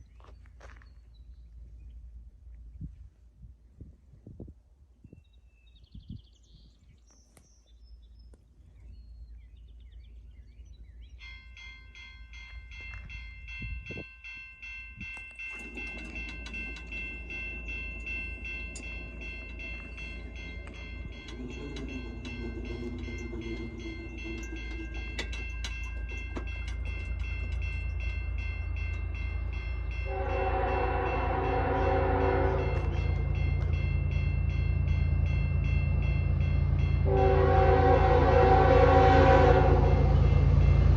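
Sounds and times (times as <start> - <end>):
train rumble: 7.9 - 40.9
level crossing bells ringing: 11.2 - 38.5
locomotive air horn blasts: 30.0 - 33.0, 37.0 - 40.2.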